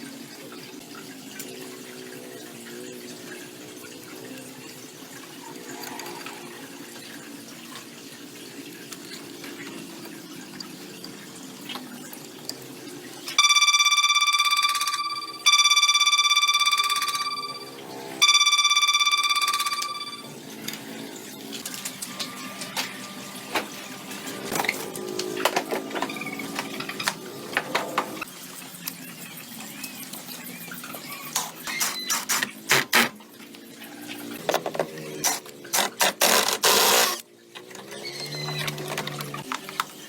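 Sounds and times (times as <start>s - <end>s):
high-pitched ringing tone: 13.3s - 20.5s.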